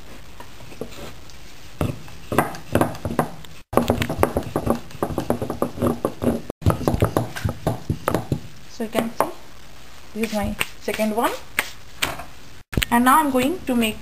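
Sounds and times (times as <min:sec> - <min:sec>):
rolling pin knocking on board: 0:01.8 - 0:08.5.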